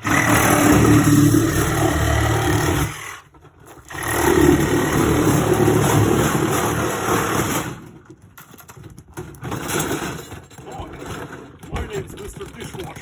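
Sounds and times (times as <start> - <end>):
power saw cutting metal casing: 0.0 - 8.1.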